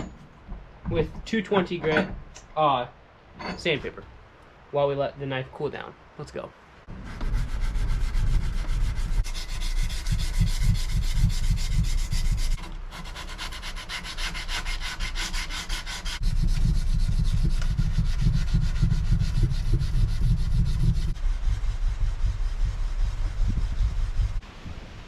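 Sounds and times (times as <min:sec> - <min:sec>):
sandpaper rubbing on metal: 0:07.0 - 0:24.4.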